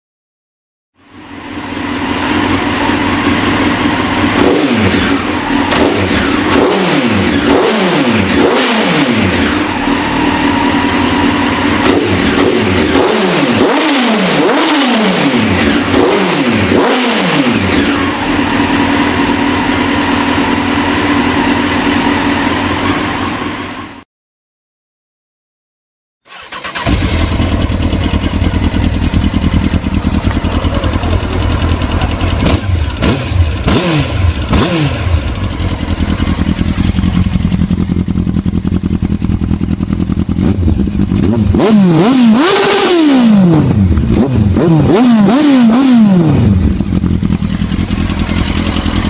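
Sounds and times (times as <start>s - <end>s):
motorcycle engine revving: 1.0s - 24.0s, 26.3s - 49.0s.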